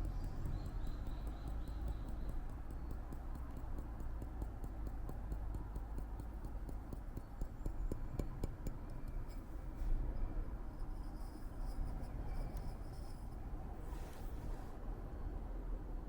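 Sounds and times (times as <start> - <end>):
light clicks and taps: 0.0 - 9.4.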